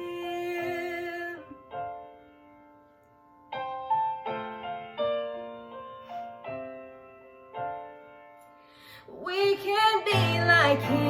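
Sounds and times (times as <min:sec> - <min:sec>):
piano chords and notes: 0:00.0 - 0:11.0.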